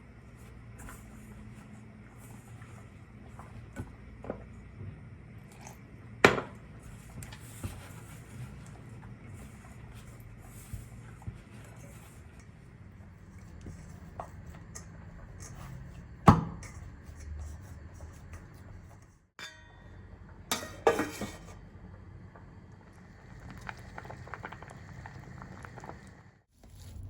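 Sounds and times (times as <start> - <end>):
dishes and utensils clattering: 19.4 - 21.6.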